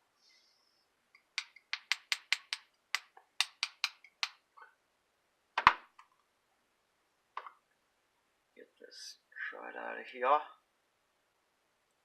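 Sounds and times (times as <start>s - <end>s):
sharp clicks: 1.2s - 4.4s.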